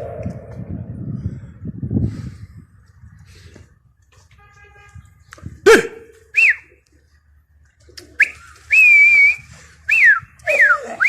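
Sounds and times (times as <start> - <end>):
person whistling: 8.2 - 11.0.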